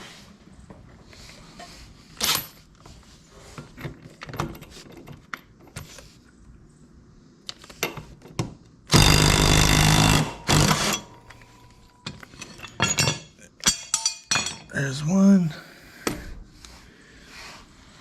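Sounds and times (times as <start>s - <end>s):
impact wrench hammering: 8.9s - 11.2s
metal tools clinking: 10.7s - 14.9s.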